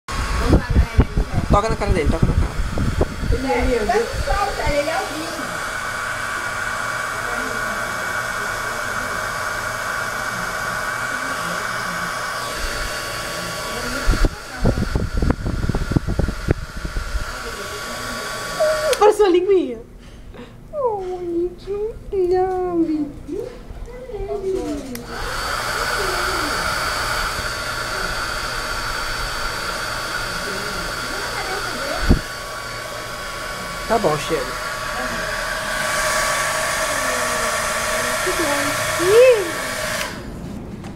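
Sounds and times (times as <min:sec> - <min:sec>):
hair dryer blowing: 0:00.0 - 0:19.3, 0:24.4 - 0:40.4
hair dryer switch: 0:00.2 - 0:19.2, 0:24.9 - 0:40.3
loud low thumps: 0:00.5 - 0:03.4.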